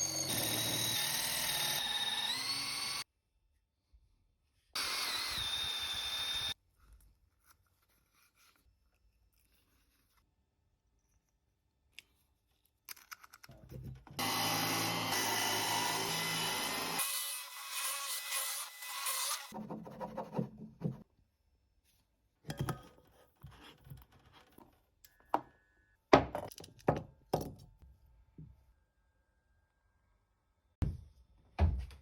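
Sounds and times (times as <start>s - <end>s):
sawing through wood: 14.2s - 21.0s.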